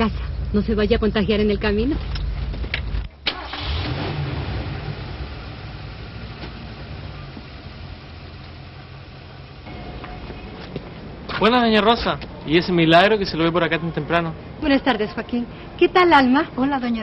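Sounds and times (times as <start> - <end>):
road noise: 0.0 - 17.0
car engine running: 0.8 - 11.0.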